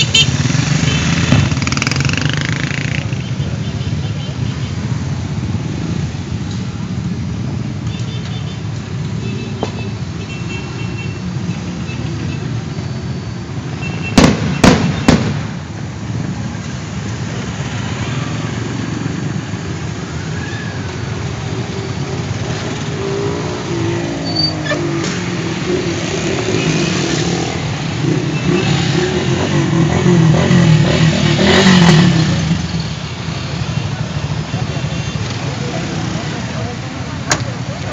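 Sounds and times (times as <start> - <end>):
motorcycles passing on highway: 0.0 - 8.0, 8.6 - 37.9
sharp bangs: 14.1 - 15.6.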